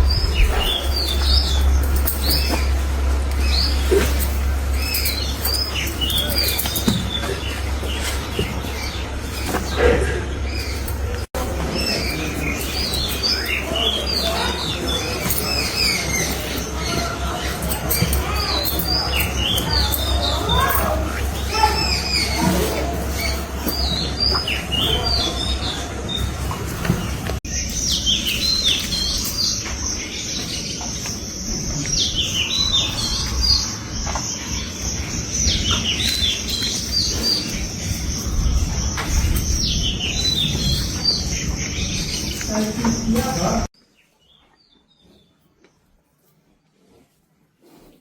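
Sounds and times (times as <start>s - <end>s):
low rumble: 0.0s - 11.7s.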